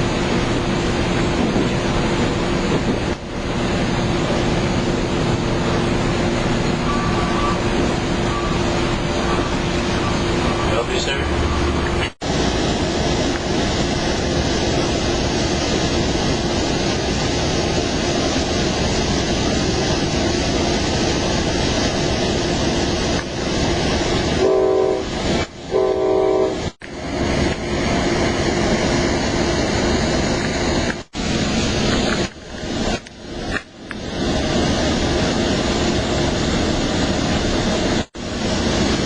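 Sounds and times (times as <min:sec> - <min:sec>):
train rumbling on rails: 0:00.0 - 0:39.0
train horn blasts: 0:24.4 - 0:25.1, 0:25.7 - 0:26.7.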